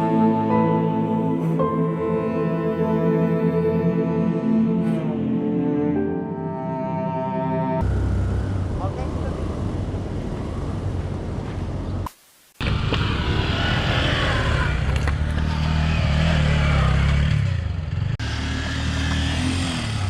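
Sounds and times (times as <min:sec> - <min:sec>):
motorcycle engine running: 0:12.6 - 0:20.0.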